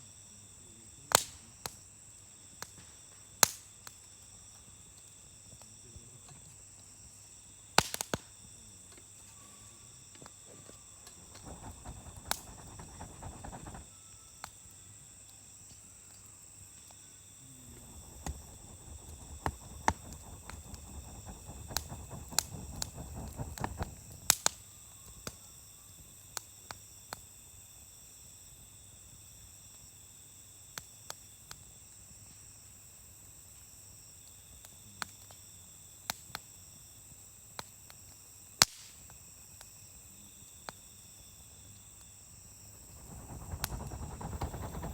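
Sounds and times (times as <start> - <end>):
sharp pops from fire: 1.1 - 1.8, 2.6 - 4.0, 7.8 - 8.3, 11.1 - 13.9, 17.7 - 24.6, 38.6 - 39.0, 42.7 - 44.9
wood campfire crackling: 11.1 - 13.9, 17.5 - 24.6, 42.7 - 44.9.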